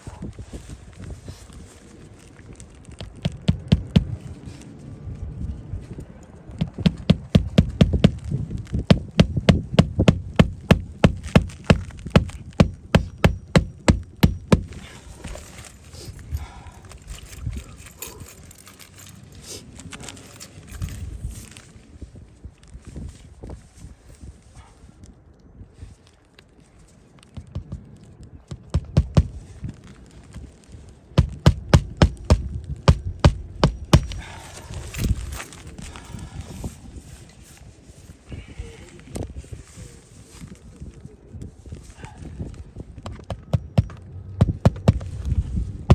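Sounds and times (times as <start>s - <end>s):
hammer driving nails: 6.6s - 8.2s, 8.9s - 14.8s, 31.2s - 34.2s.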